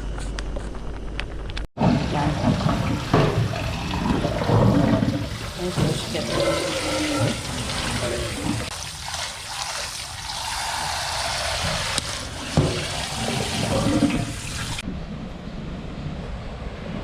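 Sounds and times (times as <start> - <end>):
water running and splashing: 1.8 - 14.8.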